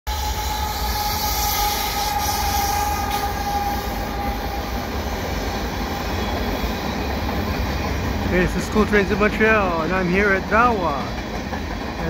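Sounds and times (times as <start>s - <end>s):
high tone from wheels: 0.1s - 8.2s
train wheels rumbling on rail: 0.1s - 12.0s.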